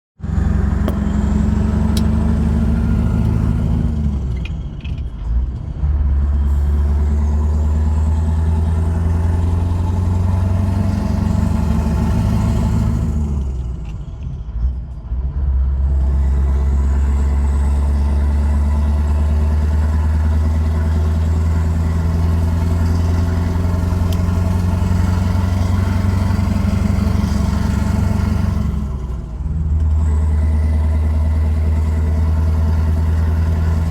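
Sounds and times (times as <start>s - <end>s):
diesel truck engine pulling: 0.2s - 33.9s.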